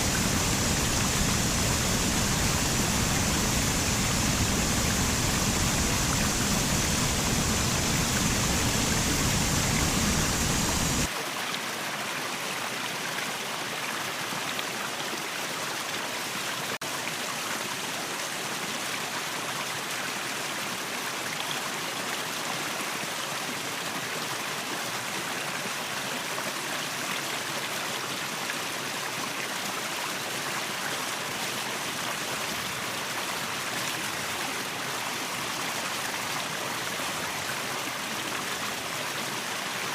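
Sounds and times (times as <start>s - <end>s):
waterfall roaring: 0.0s - 11.1s.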